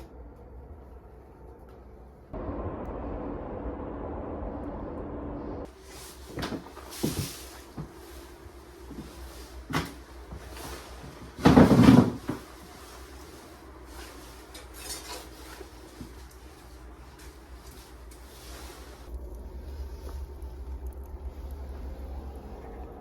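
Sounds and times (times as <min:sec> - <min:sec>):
objects knocking and clattering: 0:11.2 - 0:12.5.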